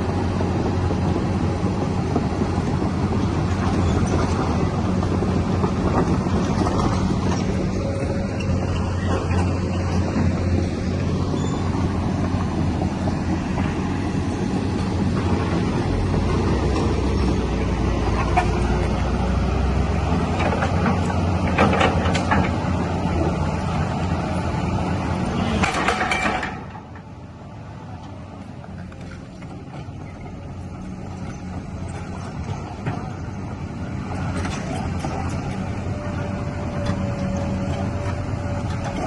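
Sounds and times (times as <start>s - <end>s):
excavator diesel engine running: 0.0s - 39.0s
metallic squeaks and clanks: 6.9s - 10.0s, 11.4s - 11.7s.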